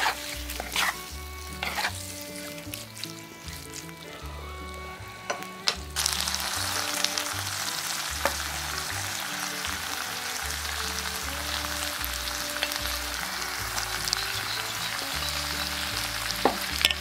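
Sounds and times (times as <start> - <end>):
food sizzling in a wok: 0.0 - 17.0
wooden spatula knocking pan: 5.2 - 5.9.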